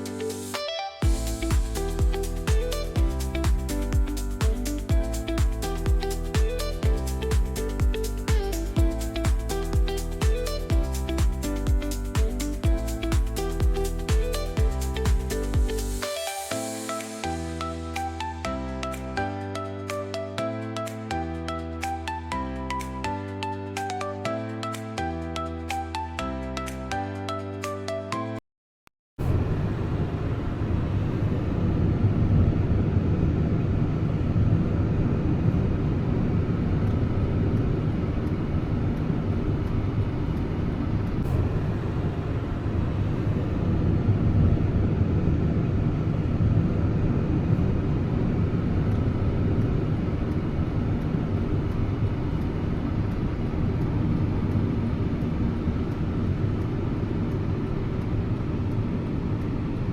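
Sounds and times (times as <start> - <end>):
low vehicle rumble: 1.0 - 16.0.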